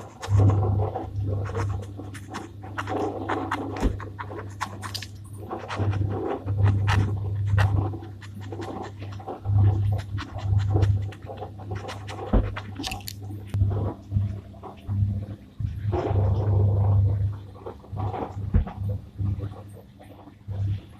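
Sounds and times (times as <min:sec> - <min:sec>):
pen scratching on paper: 0:00.0 - 0:13.1.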